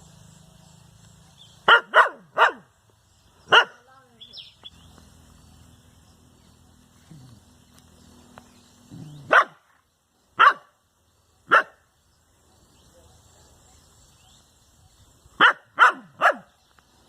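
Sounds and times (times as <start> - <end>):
dog barking: 1.6 - 2.7, 3.5 - 3.9, 9.2 - 9.6, 10.4 - 10.7, 11.5 - 11.8, 15.4 - 16.5.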